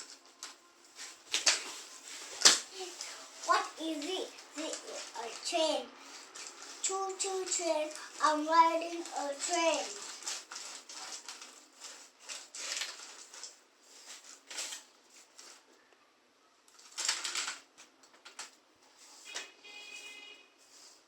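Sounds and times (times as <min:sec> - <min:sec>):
rustling: 0:00.0 - 0:15.8.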